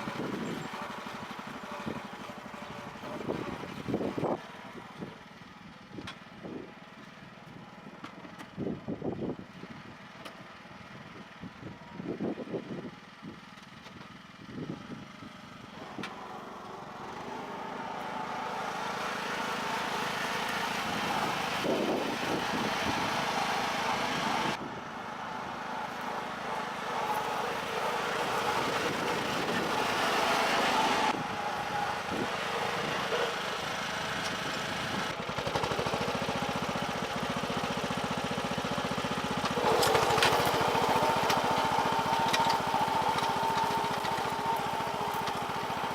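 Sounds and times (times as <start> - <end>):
small tractor engine running: 0.0 - 45.9.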